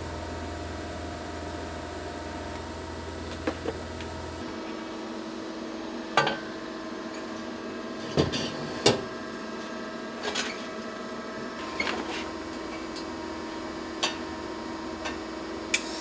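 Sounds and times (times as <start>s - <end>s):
steady electrical hum: 0.0s - 4.5s.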